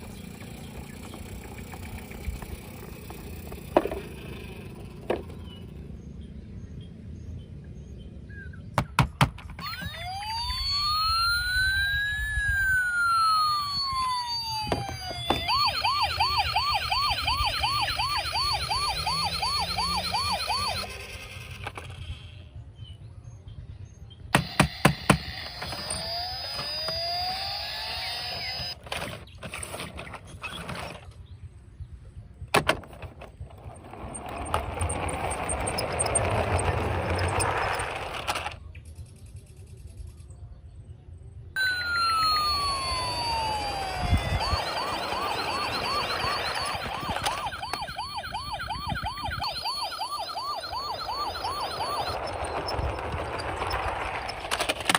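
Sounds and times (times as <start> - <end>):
toy electronic siren: 0.0 - 5.6, 9.5 - 22.5, 24.4 - 29.2, 33.6 - 38.5, 41.6 - 54.9.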